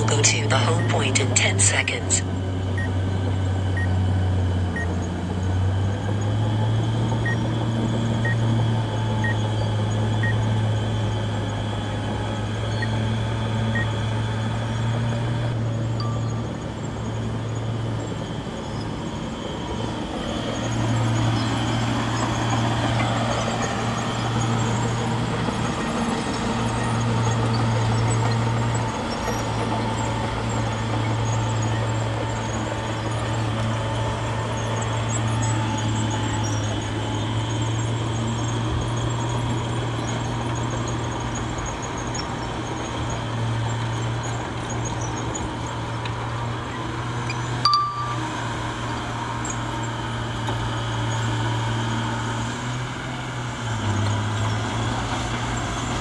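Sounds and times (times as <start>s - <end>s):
bulldozer diesel engine running: 0.0s - 47.6s
faint short beeps: 47.3s - 48.6s.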